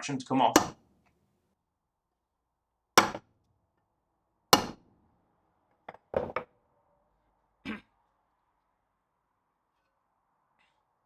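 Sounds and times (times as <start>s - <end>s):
hammer striking metal drum: 0.6s - 0.8s, 3.0s - 3.2s, 4.6s - 4.8s.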